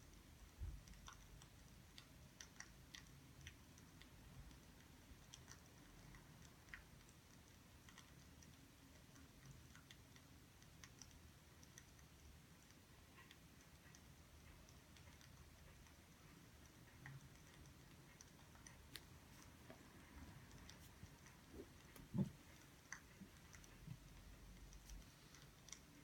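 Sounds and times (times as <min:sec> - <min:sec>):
faint wood fire crackling: 0:00.0 - 0:26.0.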